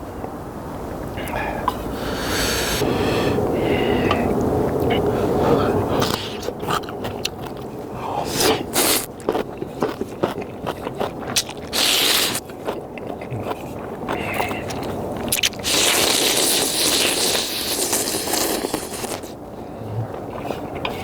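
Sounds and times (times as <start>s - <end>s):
person chewing and slurping: 5.9s - 21.0s.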